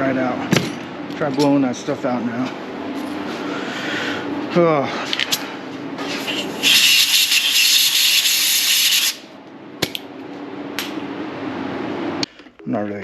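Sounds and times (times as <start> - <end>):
air blow gun hissing: 6.0 - 9.3.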